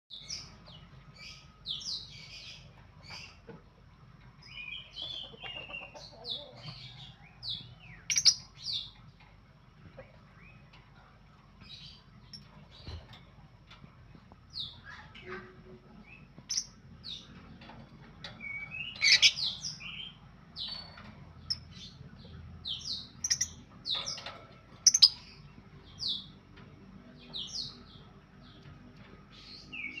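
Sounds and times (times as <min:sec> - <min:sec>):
lovebirds chirping: 0:04.4 - 0:09.0, 0:18.2 - 0:26.4.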